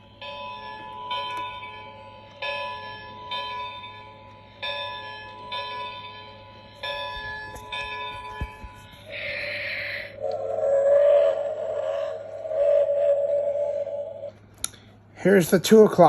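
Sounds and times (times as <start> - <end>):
clock bell ringing through speaker: 0.0 - 10.2.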